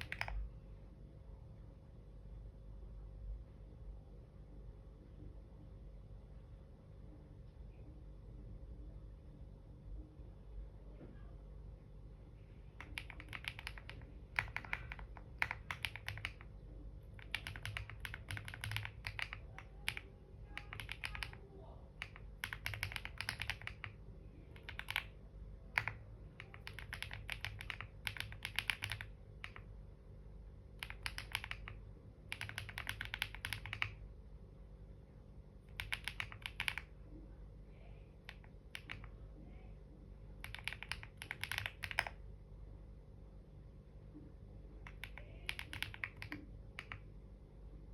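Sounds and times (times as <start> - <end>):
computer keyboard typing: 0.0 - 0.5, 12.7 - 29.8, 30.7 - 34.0, 35.6 - 37.0, 38.2 - 39.2, 40.4 - 42.2, 44.9 - 47.1.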